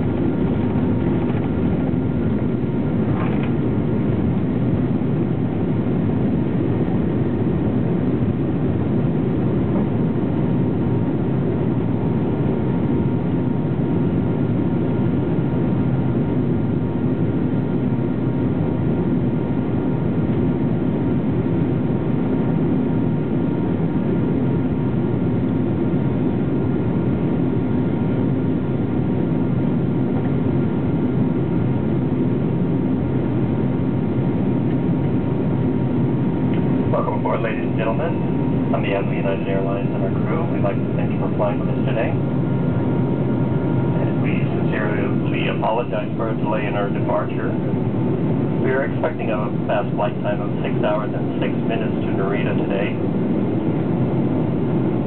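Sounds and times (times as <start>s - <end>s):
low cabin rumble: 0.0s - 55.0s
faint high whine: 35.3s - 55.0s.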